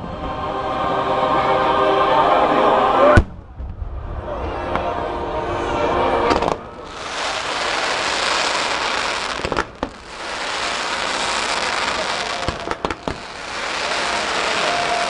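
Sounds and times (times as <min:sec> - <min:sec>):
fireworks bangs: 0:06.3 - 0:15.0
fireworks crackling: 0:06.3 - 0:15.0.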